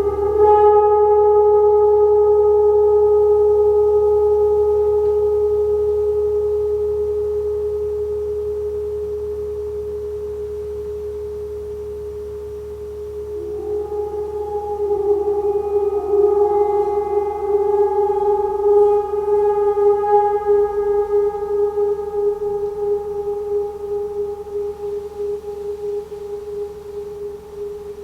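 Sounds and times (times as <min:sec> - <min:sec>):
resonant metal instrument ringing: 0:13.1 - 0:28.0.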